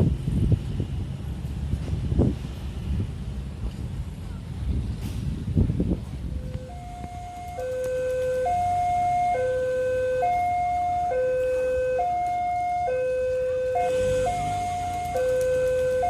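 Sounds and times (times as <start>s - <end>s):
two-tone electronic alarm: 6.4s - 16.0s.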